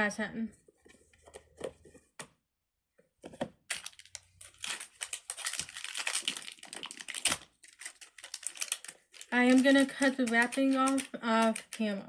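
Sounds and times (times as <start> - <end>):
plastic wrapping crinkling: 3.6 - 12.0.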